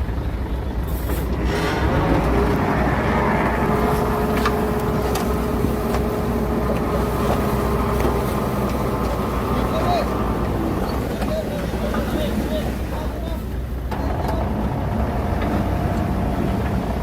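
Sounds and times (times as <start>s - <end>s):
heavy diesel machinery rumbling: 0.0s - 17.0s.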